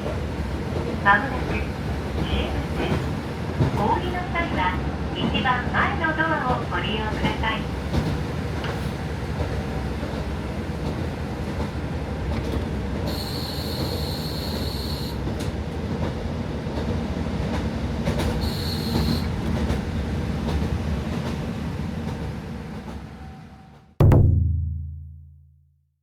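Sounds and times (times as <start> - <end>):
train engine and wheels rumbling: 0.0 - 24.0.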